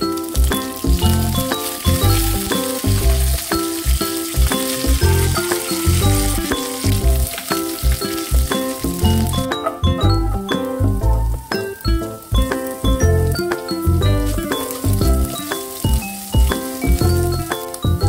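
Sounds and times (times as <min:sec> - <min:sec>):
oil sizzling in a pan: 0:00.0 - 0:18.0
plucked background music: 0:00.0 - 0:18.0
spatula stirring: 0:00.3 - 0:09.8.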